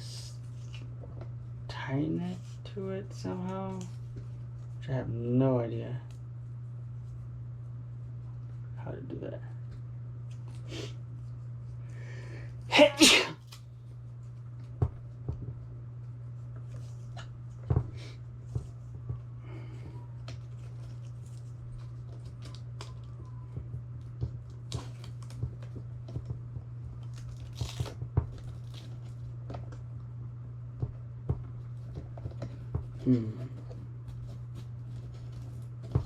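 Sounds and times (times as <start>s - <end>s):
steady low hum: 0.0s - 36.0s
velcro straps tearing: 27.1s - 29.0s.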